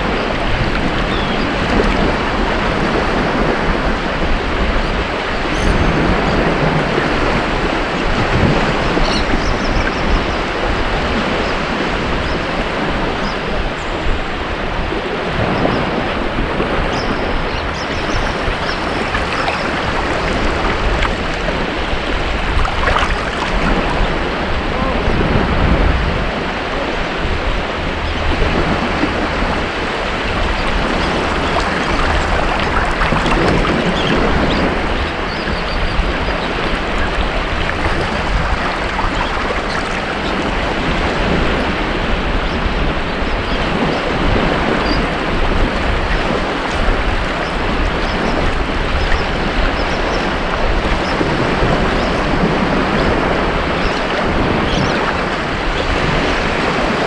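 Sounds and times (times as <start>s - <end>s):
ocean surf breaking on beach: 16.3s - 27.3s, 28.5s - 42.4s.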